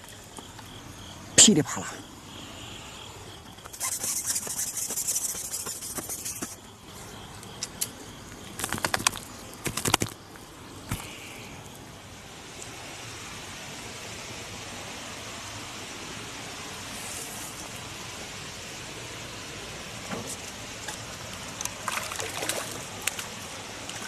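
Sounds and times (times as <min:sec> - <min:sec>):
fish flapping and thrashing: 0:03.7 - 0:06.6, 0:08.6 - 0:10.2
fish slaps: 0:08.6 - 0:10.2.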